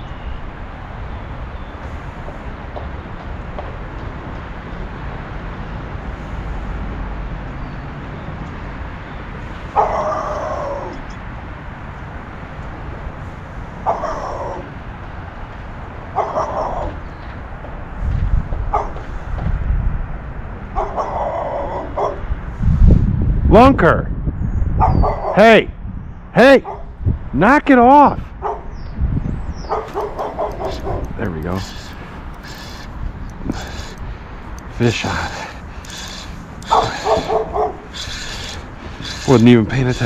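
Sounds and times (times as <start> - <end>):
wind rumbling on microphone: 8.8 - 27.4, 28.1 - 40.0
dog barking: 9.7 - 10.3, 13.8 - 14.4, 16.2 - 16.9, 18.7 - 19.0, 20.8 - 22.3, 24.8 - 25.4, 26.6 - 26.9, 28.4 - 28.7, 29.7 - 31.0, 36.7 - 38.4.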